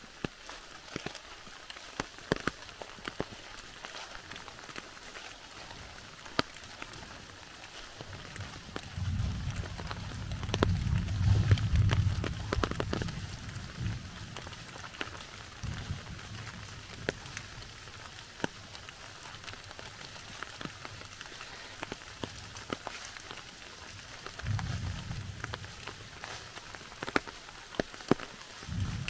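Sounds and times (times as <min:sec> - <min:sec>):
drops ticking on leaves: 0:00.0 - 0:29.0
steady rain: 0:00.0 - 0:29.0
low rumbles: 0:08.2 - 0:17.1, 0:24.2 - 0:27.0, 0:28.6 - 0:29.0.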